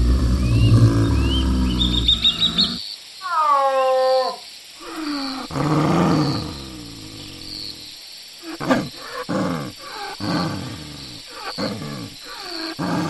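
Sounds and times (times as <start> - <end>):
large animal calling: 0.0 - 7.6
small birds chirping: 0.0 - 13.0.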